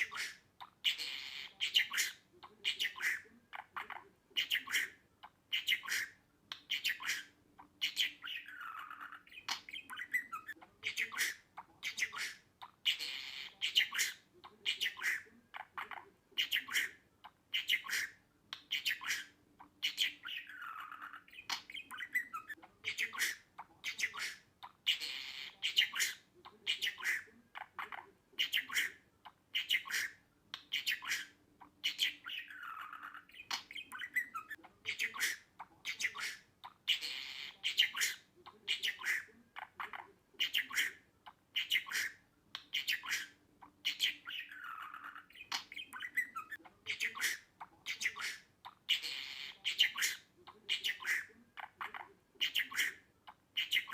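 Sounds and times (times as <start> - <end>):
budgerigar squawks and chirps: 0.0 - 53.9
budgerigar warbling: 41.6 - 53.0.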